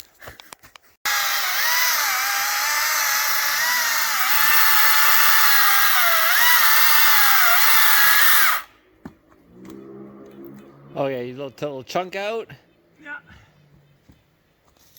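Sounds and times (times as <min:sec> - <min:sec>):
electric chainsaw cutting wood: 0:01.1 - 0:08.7.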